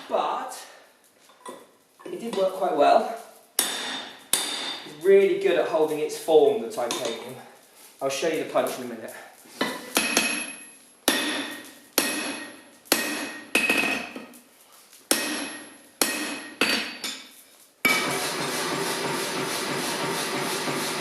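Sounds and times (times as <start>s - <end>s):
hammer striking steel anvil: 3.6s - 4.9s, 10.0s - 14.1s, 15.1s - 17.2s, 17.9s - 21.0s.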